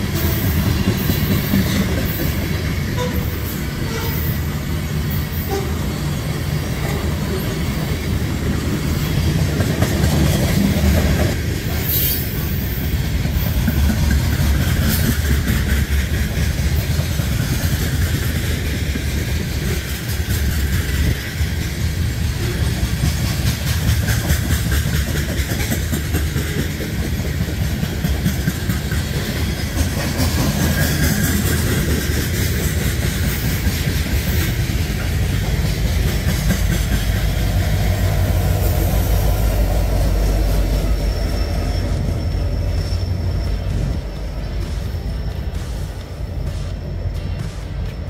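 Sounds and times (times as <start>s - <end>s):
freight train rumble: 0.0s - 48.0s
wheels clacking over rail joints: 0.0s - 48.0s.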